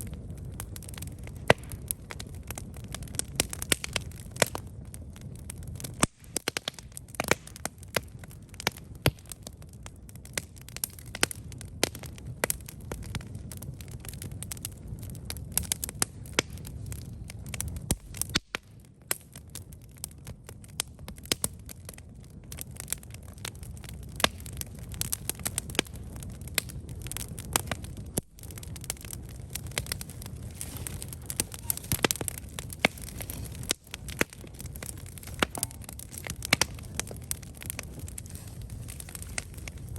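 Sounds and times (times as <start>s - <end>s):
campfire crackling and popping: 0.0s - 39.9s
low steady fire rumble: 0.0s - 39.9s.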